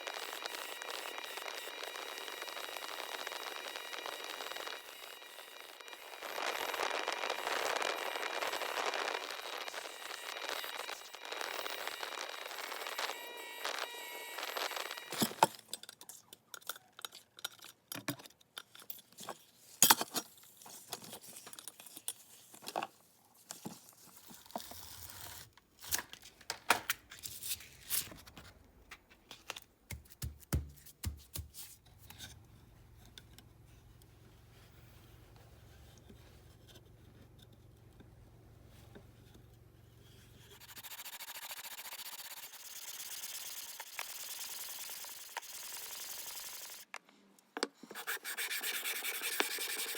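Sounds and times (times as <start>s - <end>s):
metal parts clicking and knocking: 15.2s - 20.2s
metal scraping on abrasive paper: 40.0s - 46.9s, 47.9s - 49.9s.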